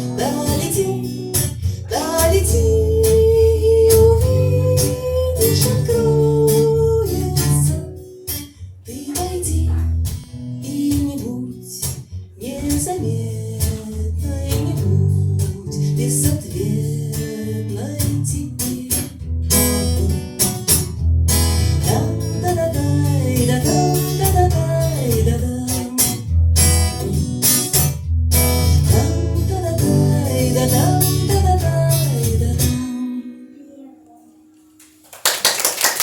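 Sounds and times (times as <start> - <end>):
person singing: 0.0 - 7.9, 28.9 - 34.5
strummed acoustic guitar: 0.0 - 34.8.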